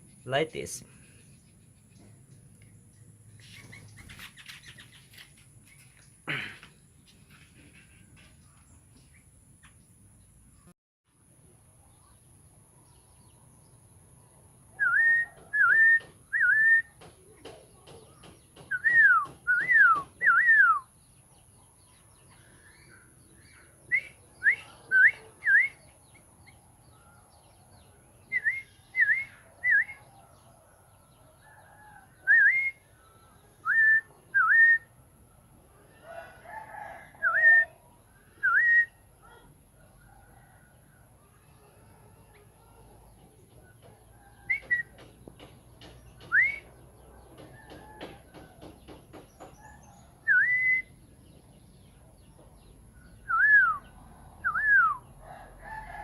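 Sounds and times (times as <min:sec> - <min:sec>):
songbird whistling: 0:14.8 - 0:17.0, 0:18.7 - 0:21.0, 0:23.9 - 0:26.0, 0:28.3 - 0:30.1, 0:32.2 - 0:32.8, 0:33.6 - 0:34.9, 0:38.4 - 0:39.0, 0:44.4 - 0:45.0, 0:46.2 - 0:46.8, 0:49.6 - 0:51.0, 0:53.2 - 0:55.0.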